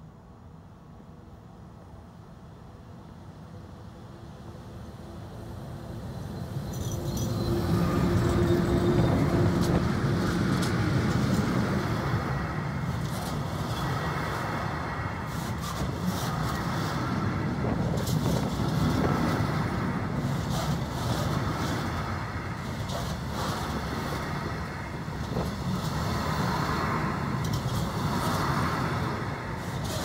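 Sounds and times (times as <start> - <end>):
wheels rumbling on rail: 2.6 - 30.0
wheels clacking over rail joints: 6.8 - 30.0.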